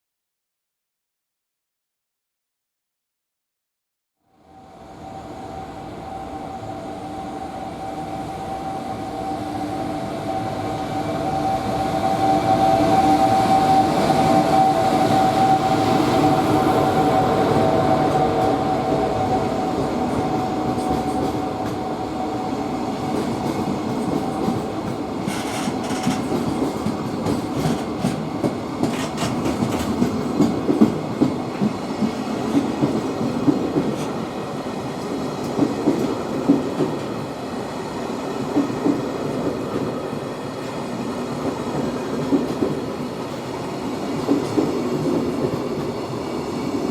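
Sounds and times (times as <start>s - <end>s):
electric locomotive humming: 4.4s - 46.9s.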